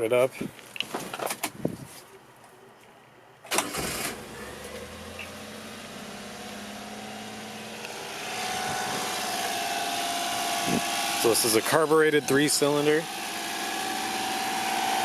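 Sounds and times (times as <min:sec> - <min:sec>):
engine starting and idling: 0:03.5 - 0:06.4.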